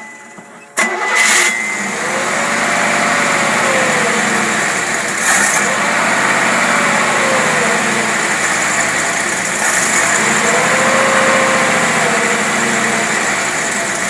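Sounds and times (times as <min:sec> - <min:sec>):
engine running steadily: 0:00.8 - 0:14.0.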